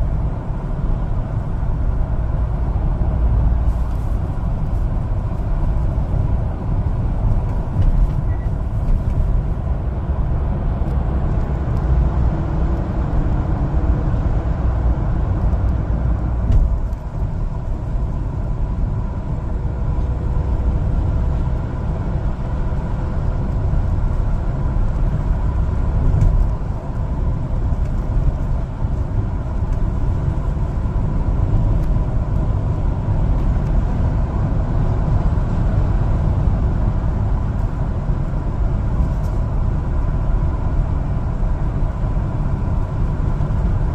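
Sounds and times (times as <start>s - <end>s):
truck engine and road noise: 0.0s - 43.9s.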